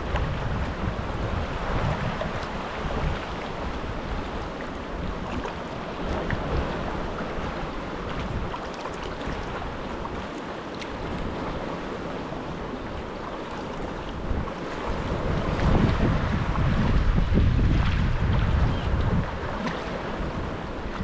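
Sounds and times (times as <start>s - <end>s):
wind buffeting microphone: 0.0s - 10.3s, 11.0s - 21.0s
water splashes and drips: 8.0s - 11.4s.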